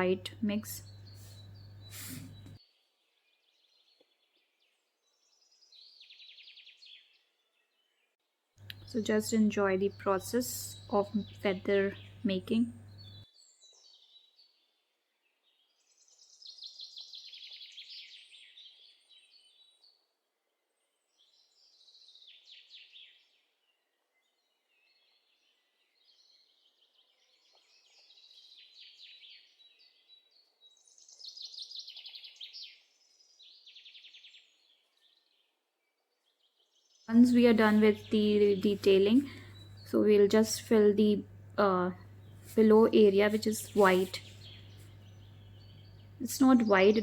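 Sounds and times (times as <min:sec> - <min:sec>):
faint trilled bird chirping: 0:20.8 - 0:47.0.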